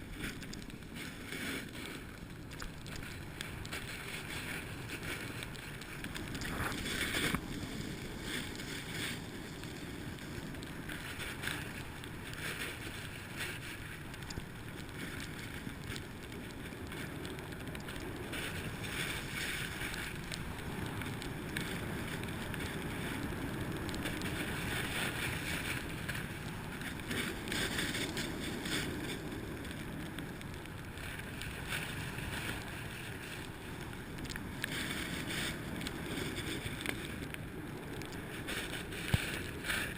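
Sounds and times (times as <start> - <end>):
wind on microphone: 0.0 - 14.2
snowboard scraping over snow: 0.0 - 39.9.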